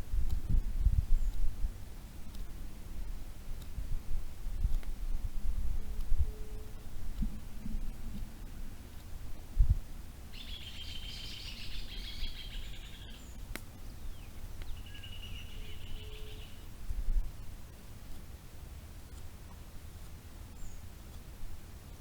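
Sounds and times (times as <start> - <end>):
dull low thump: 7.2 - 8.3
songbird trilling: 10.3 - 16.8.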